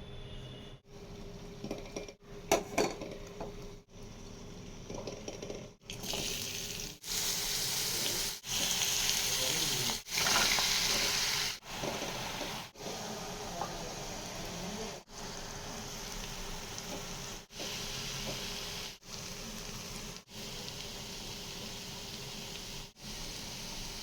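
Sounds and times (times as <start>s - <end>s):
mushrooms sizzling in a pan: 6.0s - 24.0s.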